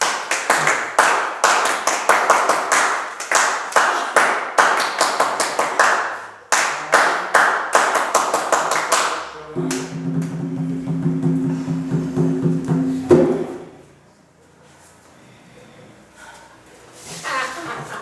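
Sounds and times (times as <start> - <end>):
people clapping quickly: 0.0 - 10.4.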